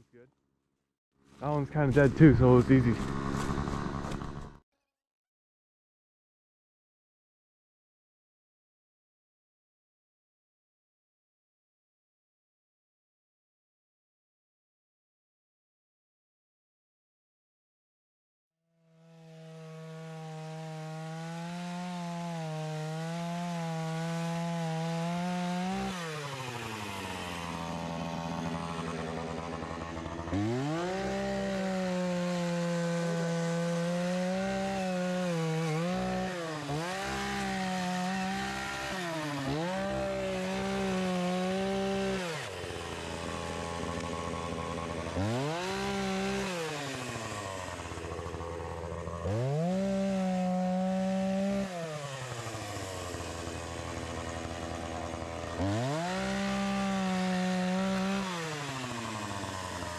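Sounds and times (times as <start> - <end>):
chainsaw cutting logs: 1.4 - 4.6, 18.8 - 59.9.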